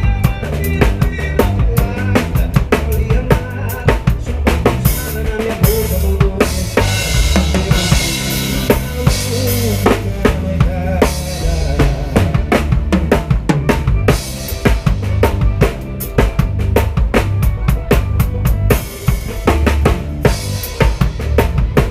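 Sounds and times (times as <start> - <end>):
live band music: 0.0 - 21.9.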